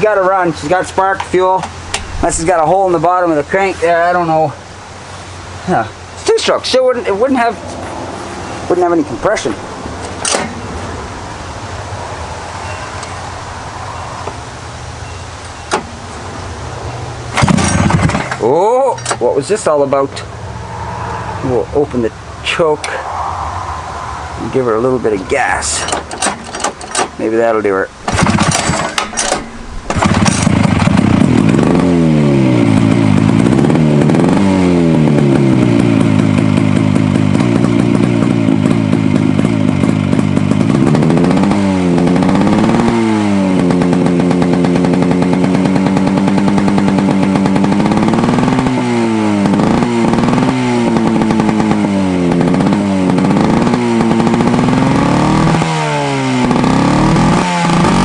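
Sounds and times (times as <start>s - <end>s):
two-stroke engine revving: 17.3s - 20.0s, 25.6s - 58.0s.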